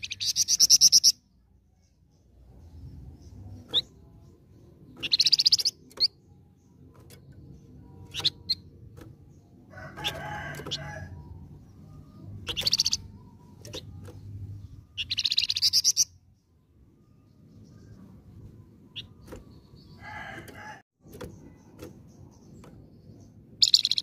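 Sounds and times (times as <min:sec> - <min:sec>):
bird chattering calls: 0:12.5 - 0:13.2.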